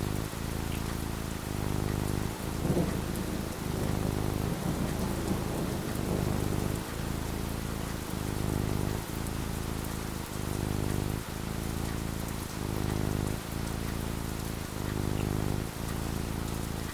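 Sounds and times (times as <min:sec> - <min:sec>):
steady rainfall: 0:00.0 - 0:16.9
thunder rumble: 0:02.3 - 0:07.4.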